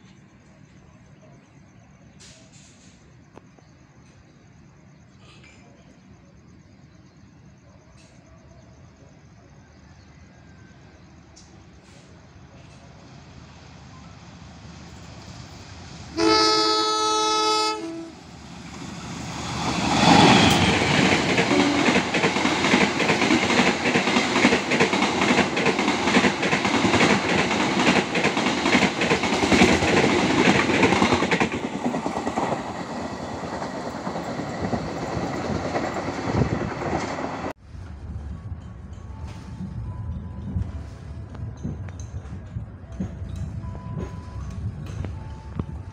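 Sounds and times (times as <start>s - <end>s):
train rumble: 0.0s - 45.9s
train horn blast: 16.1s - 18.3s, 21.5s - 22.0s
train wheel clicks over rails: 19.0s - 37.6s.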